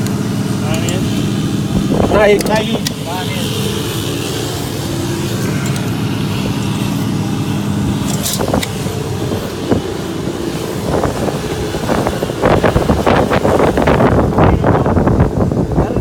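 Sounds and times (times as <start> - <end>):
irregular buffeting: 0.0 - 16.0
vehicle engine running: 0.0 - 16.0.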